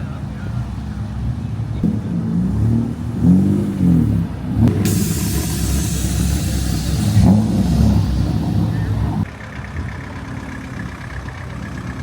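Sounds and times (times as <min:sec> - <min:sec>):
car engine revving: 0:01.8 - 0:09.3
steady rushing hiss: 0:04.8 - 0:09.3.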